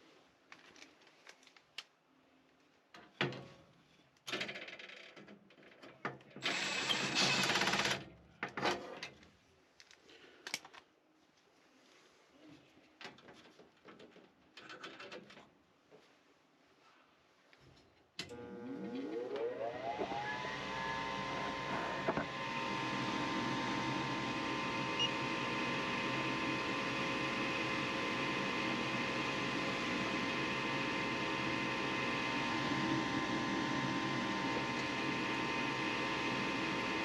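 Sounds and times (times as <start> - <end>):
furnace inducer motor whine: 18.2 - 37.0.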